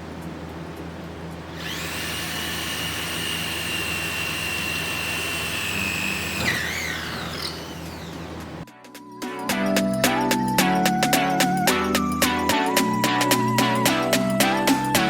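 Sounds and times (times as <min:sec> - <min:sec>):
electric drill whining: 0:01.5 - 0:08.6.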